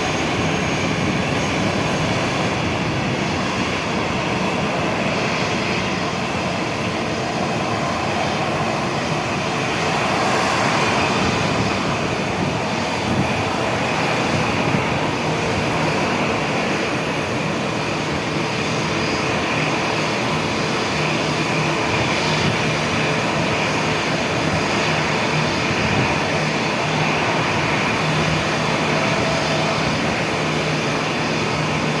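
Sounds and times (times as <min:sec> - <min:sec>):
jet engines at takeoff power: 0:00.0 - 0:32.0
steady rushing noise: 0:00.0 - 0:32.0.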